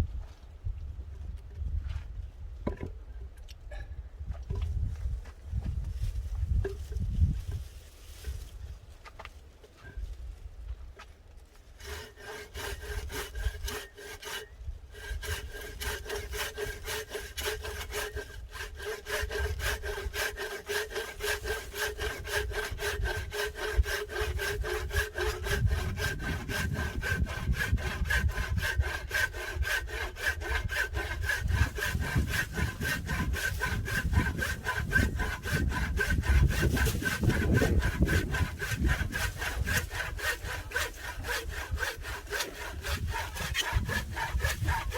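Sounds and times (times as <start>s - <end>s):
saw cutting firewood: 11.4s - 44.9s.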